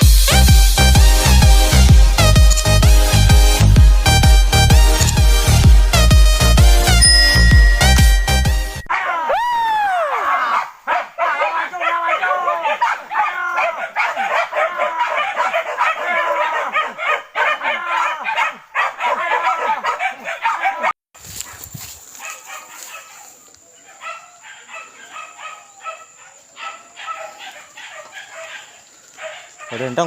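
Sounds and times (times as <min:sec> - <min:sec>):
dogs barking and yelping: 0:10.0 - 0:30.0.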